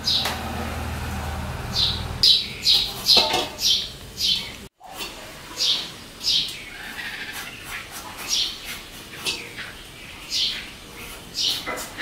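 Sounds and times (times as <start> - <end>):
bird chirping: 1.7 - 4.7, 5.5 - 11.8
knife scraping fruit: 11.0 - 12.0.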